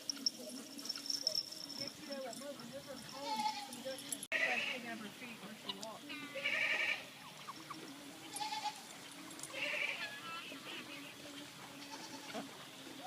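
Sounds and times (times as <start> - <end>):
goats bleating: 3.2 - 4.8, 6.1 - 7.1, 8.3 - 8.9, 9.5 - 11.1, 11.7 - 12.5.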